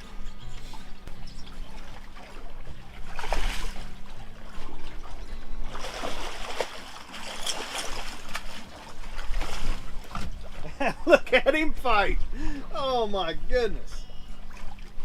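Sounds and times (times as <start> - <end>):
fish thrashing and splashing water: 1.5 - 10.9, 14.4 - 15.0.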